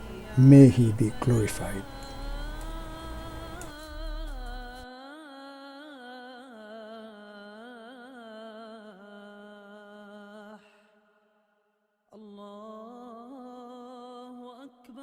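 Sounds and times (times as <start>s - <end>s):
person chanting melodically: 0.0s - 4.8s.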